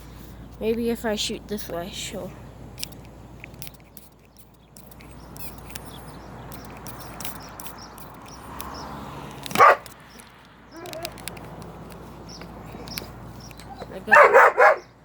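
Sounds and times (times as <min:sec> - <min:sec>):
dog barking: 0:09.5 - 0:09.9, 0:14.1 - 0:14.9.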